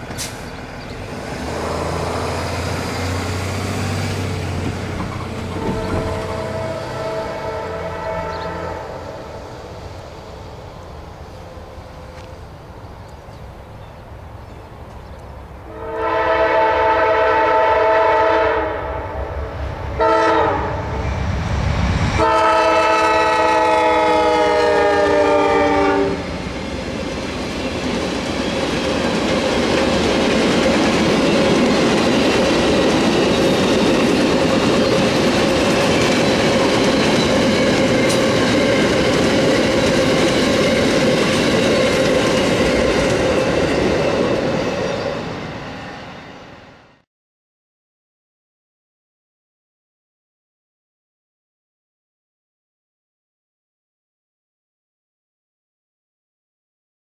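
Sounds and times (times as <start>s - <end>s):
train wheels rolling on rails: 0.0s - 15.7s, 23.3s - 47.0s
diesel locomotive rumble: 0.0s - 16.8s, 19.0s - 46.6s
train horn blasts: 5.3s - 9.8s, 15.7s - 19.3s, 20.0s - 21.2s, 22.2s - 26.3s.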